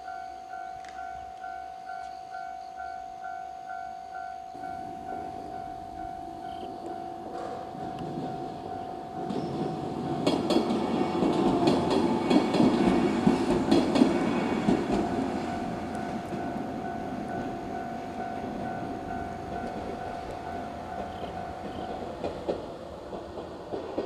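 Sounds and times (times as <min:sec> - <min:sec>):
level crossing alarm ringing: 0:00.0 - 0:22.3
train rumbling past: 0:00.0 - 0:24.0
wheels clacking over rail joints: 0:05.1 - 0:24.0.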